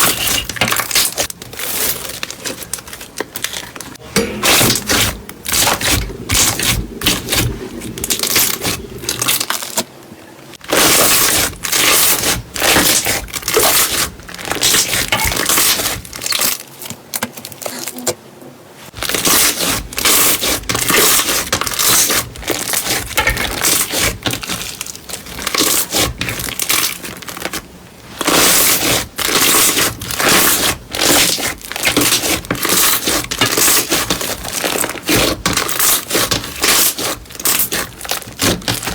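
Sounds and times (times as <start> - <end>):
crunchy slime crackling: 19.0 - 38.9.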